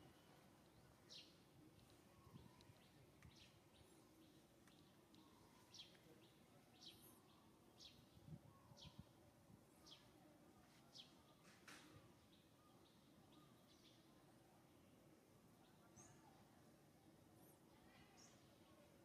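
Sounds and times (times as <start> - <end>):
bird chirping: 0.6 - 9.1.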